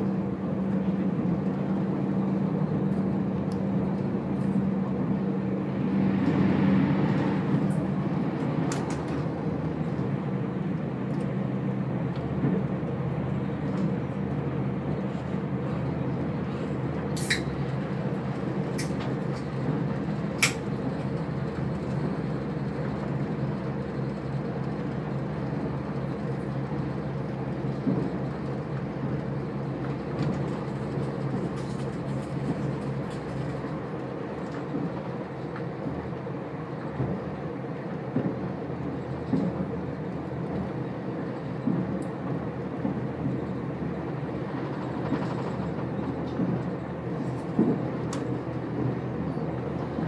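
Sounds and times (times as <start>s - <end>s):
train engine and wheels droning: 0.0s - 50.0s.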